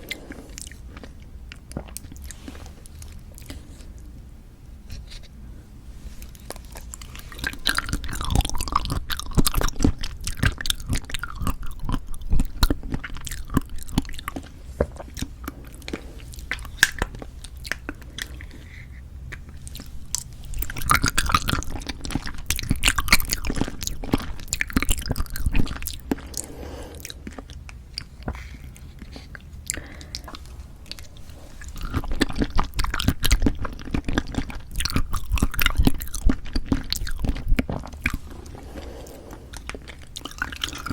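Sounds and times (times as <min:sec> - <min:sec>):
chewing jelly: 0:00.0 - 0:04.2, 0:06.1 - 0:40.9.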